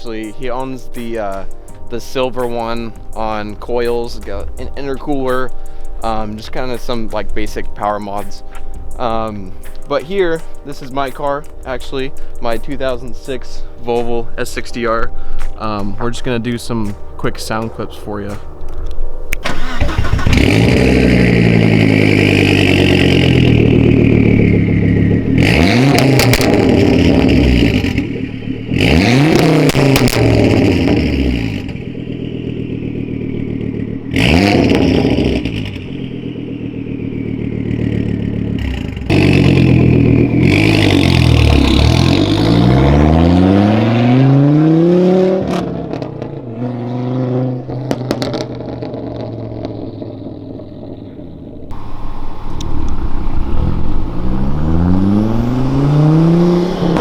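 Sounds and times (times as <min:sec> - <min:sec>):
exhaust cracks: 0:00.0 - 0:57.0
car engine revving: 0:19.4 - 0:57.0.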